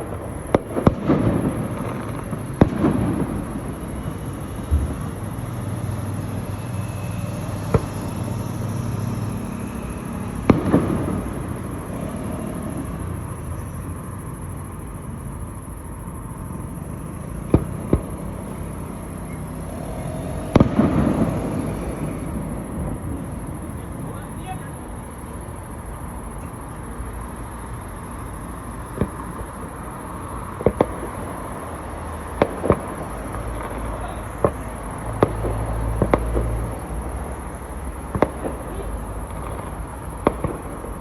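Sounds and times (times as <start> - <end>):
fireworks bursting with rumble: 0.0 - 41.0.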